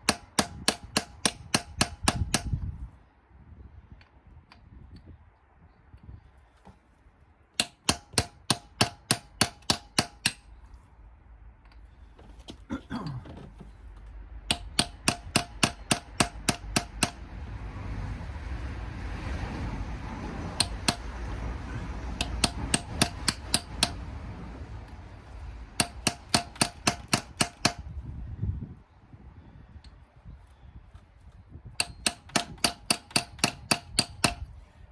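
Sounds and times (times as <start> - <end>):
hammer tapping metal: 7.6 - 10.4, 14.5 - 17.2, 20.6 - 21.1, 22.2 - 24.0, 25.8 - 27.8, 31.8 - 34.5.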